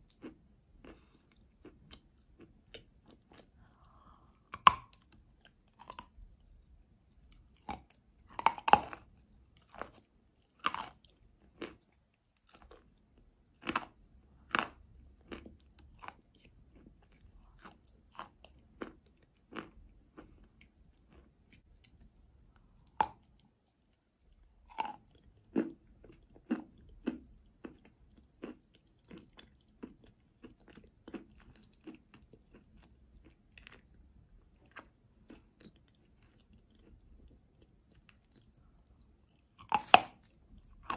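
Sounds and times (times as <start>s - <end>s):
chewing clicks: 34.6s - 40.9s.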